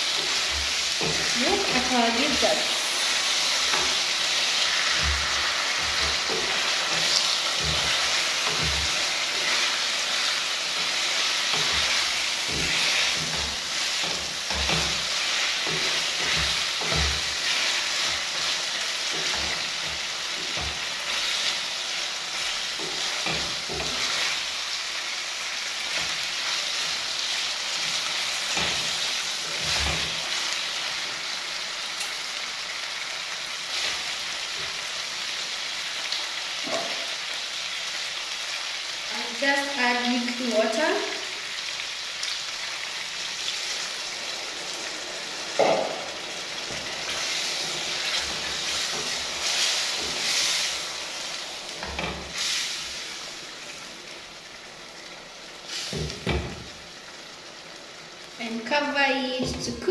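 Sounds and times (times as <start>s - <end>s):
gizzards sizzling in a pan: 0.0s - 59.9s
spatula knocking and scraping pan: 0.1s - 24.4s, 27.7s - 30.4s, 45.5s - 50.6s.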